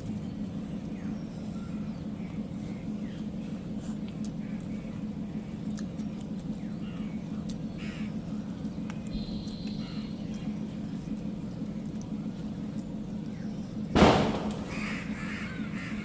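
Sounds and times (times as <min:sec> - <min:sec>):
steady low hum: 0:00.0 - 0:16.0
faint bird chirps: 0:06.5 - 0:11.1.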